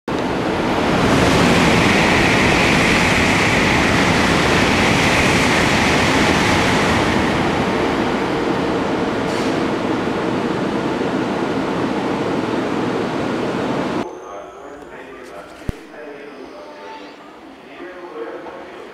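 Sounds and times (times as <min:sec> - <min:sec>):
train running rumble and hiss: 0:00.1 - 0:14.0.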